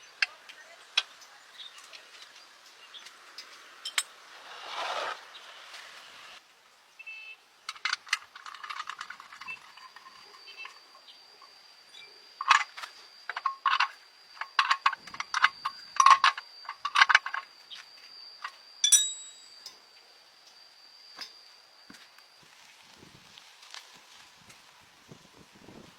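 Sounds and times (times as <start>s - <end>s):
thin steady high tone: 6.4s - 24.3s
metal tools clinking and tapping: 12.0s - 19.9s
ringing metallic strike: 18.8s - 19.9s.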